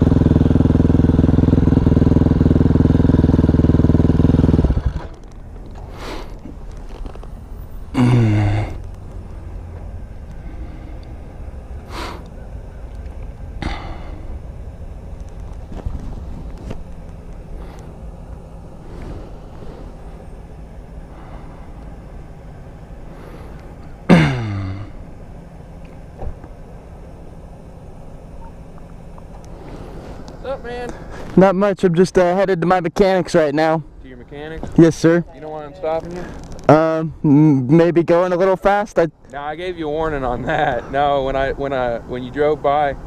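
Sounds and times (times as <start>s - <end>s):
motorcycle engine idling and revving: 0.0s - 32.8s.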